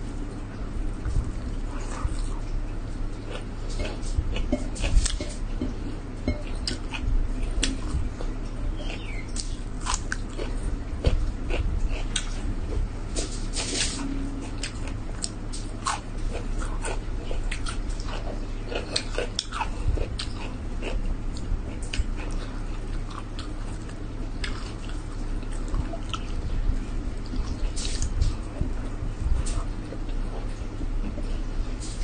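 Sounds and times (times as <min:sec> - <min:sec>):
low hum: 0:00.0 - 0:32.0
person chewing food: 0:00.2 - 0:32.0.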